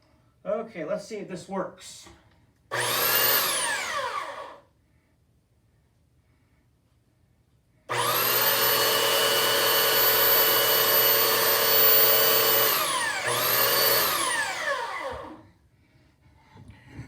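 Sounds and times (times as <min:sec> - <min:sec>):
electric belt sander running: 0:02.7 - 0:04.6, 0:07.9 - 0:15.4.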